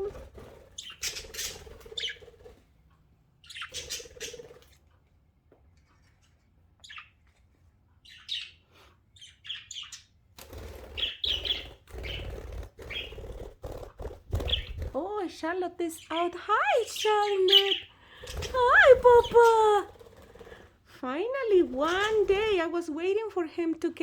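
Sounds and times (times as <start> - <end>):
budgerigars chirping: 0.7 - 2.4, 3.4 - 4.6, 8.0 - 10.1, 10.9 - 13.3, 14.4 - 14.9, 17.0 - 19.4.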